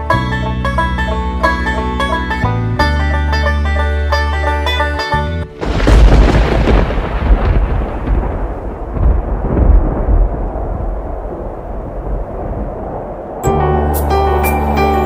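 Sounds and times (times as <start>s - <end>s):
music: 0.0s - 6.4s, 13.4s - 15.0s
rolling thunder rumble: 5.6s - 13.9s.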